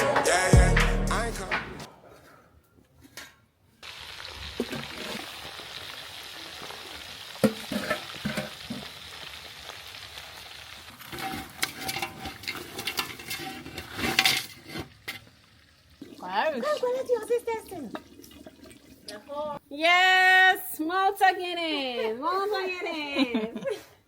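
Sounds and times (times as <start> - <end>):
food sizzling in a frying pan: 3.8 - 19.6
utensil clinking and scraping: 11.1 - 15.4.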